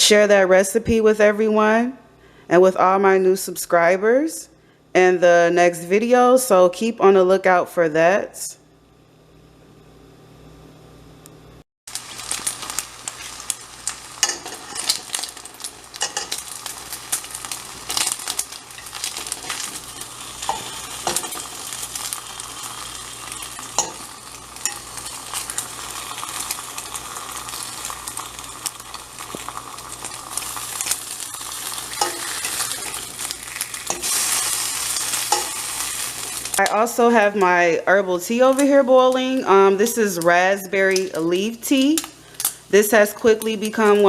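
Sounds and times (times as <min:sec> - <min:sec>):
bacon sizzling in a pan: 0:11.9 - 0:44.0.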